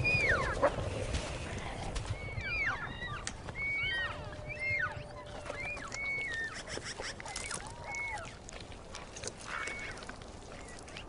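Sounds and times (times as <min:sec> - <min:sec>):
wolves whining and yelping: 0:00.0 - 0:00.8, 0:02.2 - 0:08.4, 0:09.2 - 0:11.0
wolf howling: 0:02.4 - 0:06.6.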